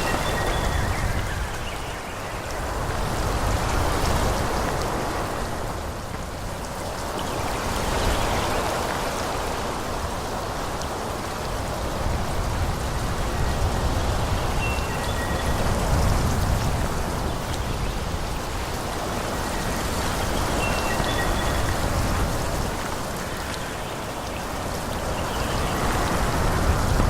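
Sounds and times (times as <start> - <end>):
wind rushing through trees: 0.0 - 27.0.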